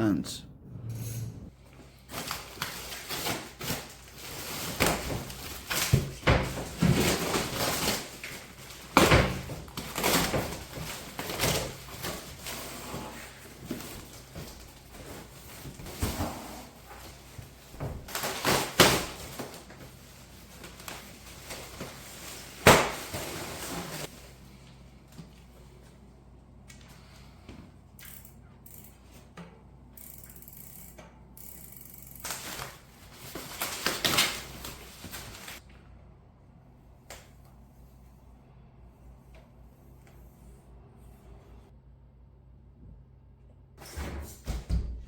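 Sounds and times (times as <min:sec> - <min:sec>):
packaging rustling and tearing: 0:18.1 - 0:24.1, 0:32.2 - 0:35.6.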